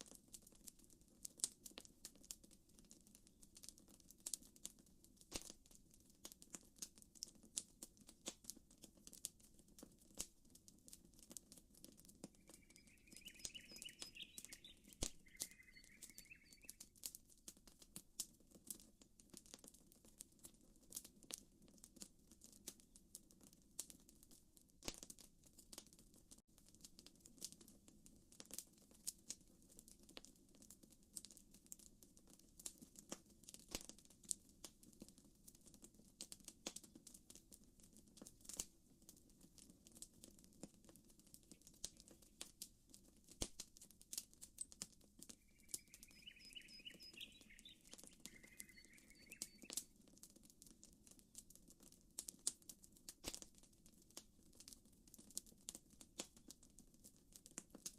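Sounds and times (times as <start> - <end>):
campfire crackling: 0.1 - 22.8, 36.2 - 56.5
bird chirping: 12.3 - 16.9, 45.3 - 49.9.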